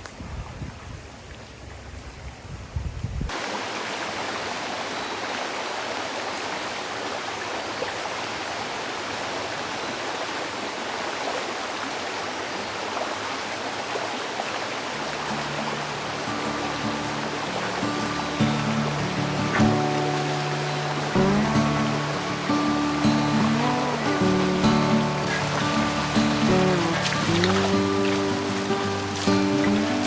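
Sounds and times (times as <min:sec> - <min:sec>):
creek water rushing: 0:03.3 - 0:30.0.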